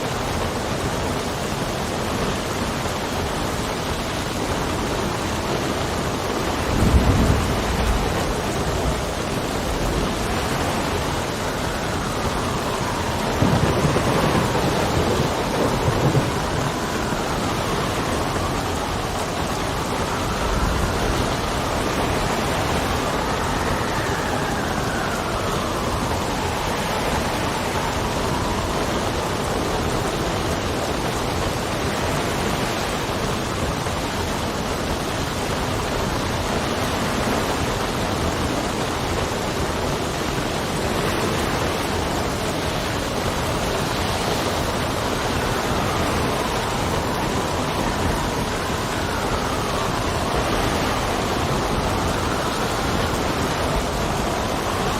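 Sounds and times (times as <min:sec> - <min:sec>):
heavy rain: 0:00.0 - 0:54.9
howling wind: 0:00.0 - 0:54.9.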